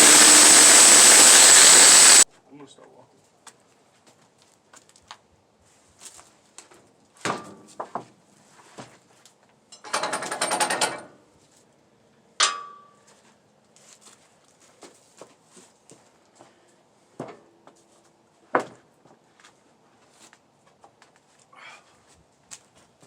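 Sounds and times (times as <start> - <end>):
metal clank with ring: 12.4 - 13.0.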